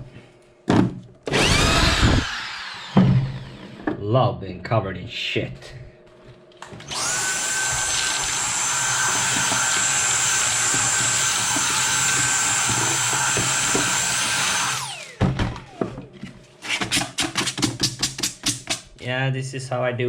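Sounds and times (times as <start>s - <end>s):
electric power tool cutting wood: 1.3s - 3.9s, 6.6s - 16.1s.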